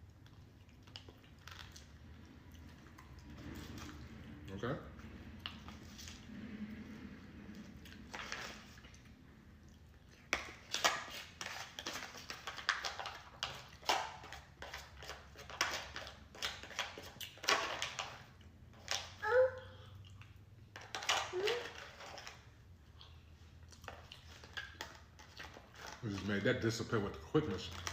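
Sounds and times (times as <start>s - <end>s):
wet chewing and mouth clicks: 0.0s - 4.4s, 7.5s - 17.5s, 19.9s - 20.8s, 22.7s - 26.0s.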